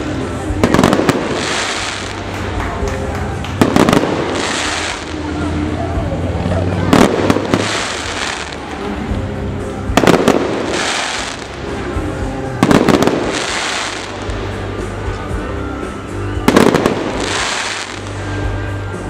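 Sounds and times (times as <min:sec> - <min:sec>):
fireworks bangs: 0:00.0 - 0:05.4, 0:06.8 - 0:08.9, 0:09.9 - 0:15.1, 0:16.4 - 0:18.6
fireworks crackling hiss: 0:00.0 - 0:06.2, 0:06.9 - 0:19.0
music: 0:00.0 - 0:19.0.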